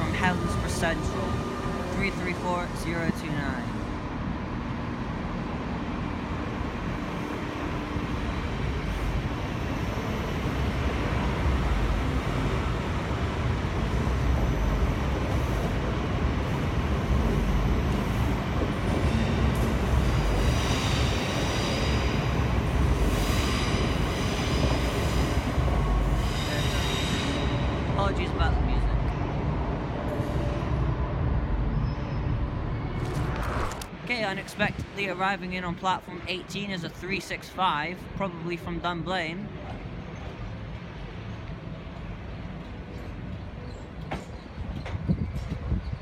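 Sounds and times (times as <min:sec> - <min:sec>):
train wheels rumbling: 0:00.0 - 0:35.2.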